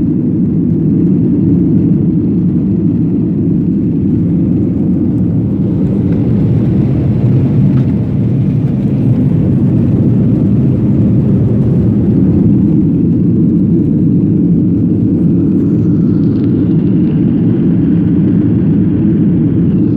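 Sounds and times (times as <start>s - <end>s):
airliner engine and airflow rumble: 0.0s - 19.9s.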